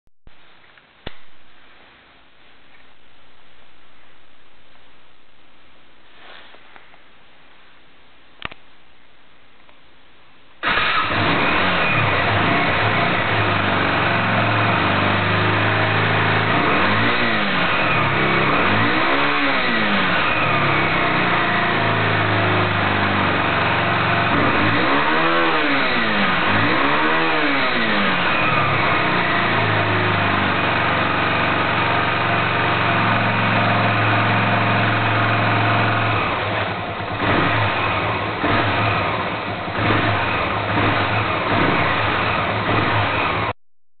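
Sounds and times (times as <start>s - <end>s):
engine idling and revving: 10.6s - 43.6s.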